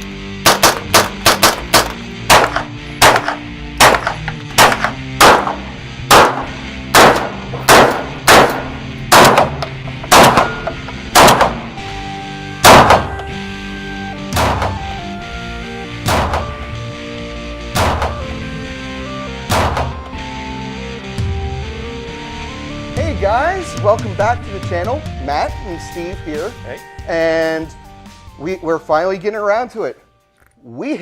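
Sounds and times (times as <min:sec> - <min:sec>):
background music: 0:00.0 - 0:31.0
gunshots: 0:00.4 - 0:11.8, 0:12.6 - 0:13.2, 0:14.3 - 0:14.8, 0:16.0 - 0:16.6, 0:17.7 - 0:18.3, 0:19.5 - 0:20.0.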